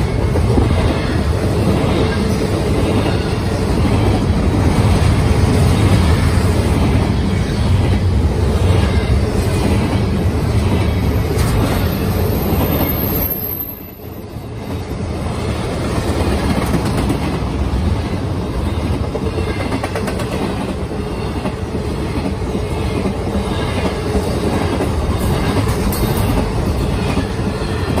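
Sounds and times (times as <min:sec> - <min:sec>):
freight train wheels rumbling: 0:00.0 - 0:28.0
high wheel squeal: 0:12.2 - 0:14.1.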